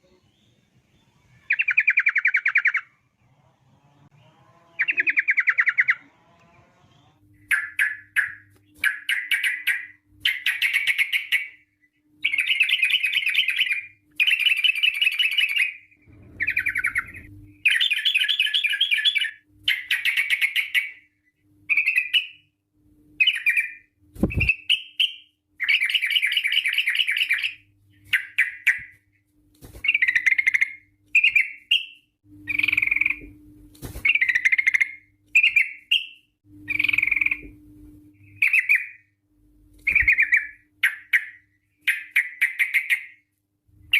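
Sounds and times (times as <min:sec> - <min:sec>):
bird singing trilled phrases: 0:00.0 - 0:02.9, 0:04.8 - 0:06.0, 0:07.5 - 0:11.6, 0:12.2 - 0:21.1, 0:21.7 - 0:22.5, 0:23.2 - 0:29.0, 0:29.9 - 0:33.3, 0:34.1 - 0:37.5, 0:38.2 - 0:39.1, 0:39.8 - 0:43.2.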